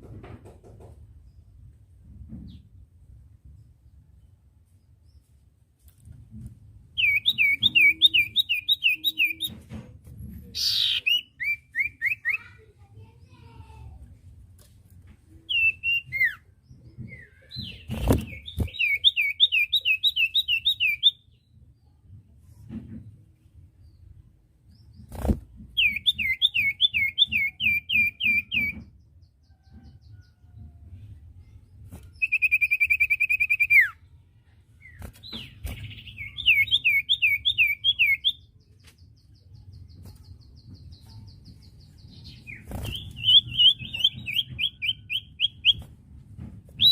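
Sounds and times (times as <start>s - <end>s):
bird singing whistled notes: 7.0s - 9.5s, 32.2s - 34.0s, 35.4s - 38.5s.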